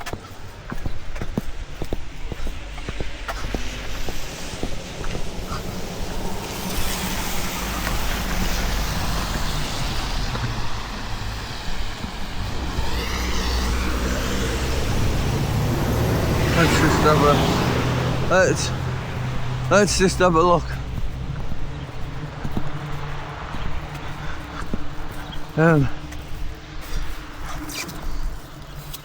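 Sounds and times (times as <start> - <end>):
vehicle engine at low revs: 0.0 - 26.2
hiss: 3.3 - 10.4
wavering whine: 3.7 - 18.3.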